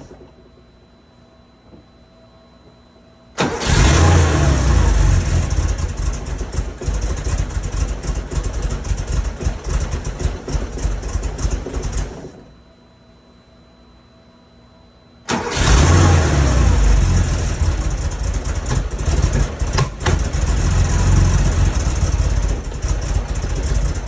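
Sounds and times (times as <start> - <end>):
car engine running roughly: 3.4 - 12.4, 15.3 - 24.0.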